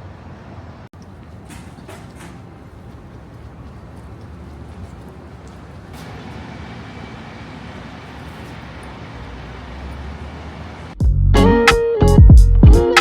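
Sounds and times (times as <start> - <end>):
low traffic rumble: 0.0 - 12.4
electric guitar music: 11.2 - 13.0.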